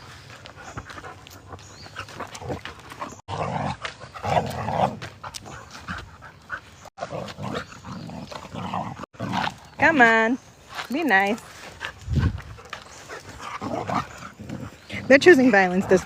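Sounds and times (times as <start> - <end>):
dog panting: 0.2 - 3.2, 5.0 - 6.9
dogs growling and snarling: 0.5 - 9.9, 11.7 - 16.0.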